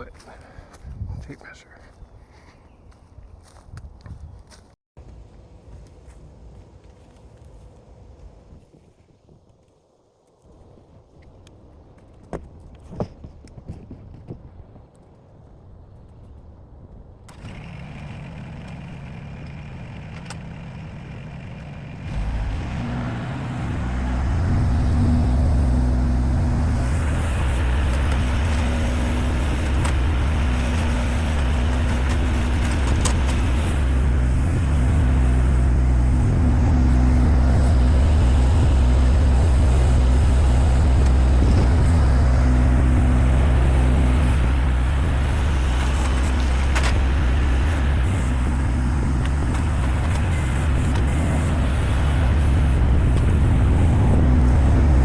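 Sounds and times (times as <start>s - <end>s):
engine humming: 15.6s - 55.0s.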